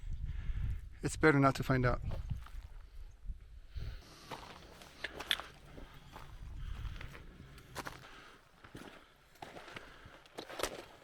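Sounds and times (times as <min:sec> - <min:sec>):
footsteps on a trail: 0:02.0 - 0:03.0, 0:03.8 - 0:11.0.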